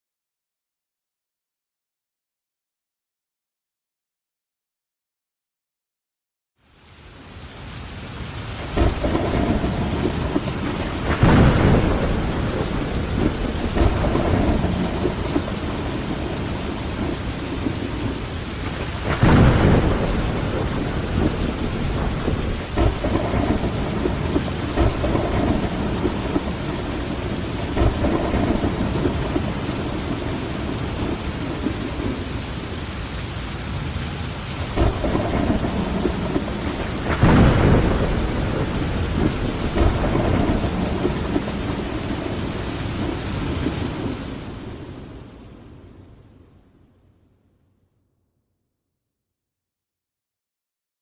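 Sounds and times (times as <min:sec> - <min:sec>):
rain on window glass: 0:06.6 - 0:46.1
thunder rumbling: 0:07.9 - 0:46.2.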